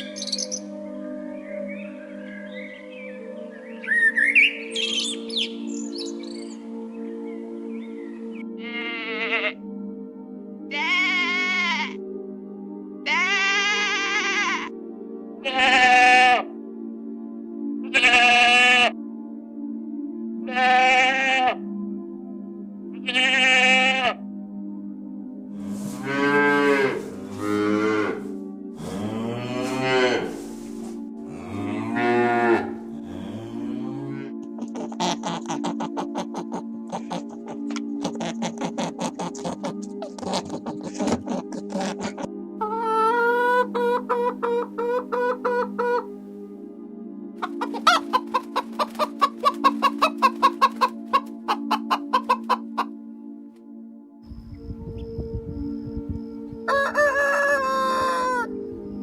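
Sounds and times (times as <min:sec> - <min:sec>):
soft background music: 0:00.0 - 0:59.0
cow mooing: 0:25.7 - 0:30.5, 0:31.3 - 0:34.4
chicken clucking: 0:34.6 - 0:46.1, 0:47.4 - 0:52.9, 0:54.4 - 0:58.5.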